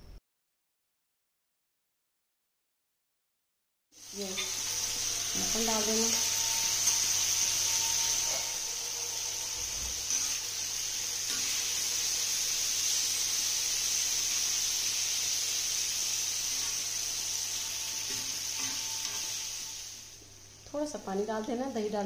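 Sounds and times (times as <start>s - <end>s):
tomatoes sizzling in oil: 4.0s - 22.0s.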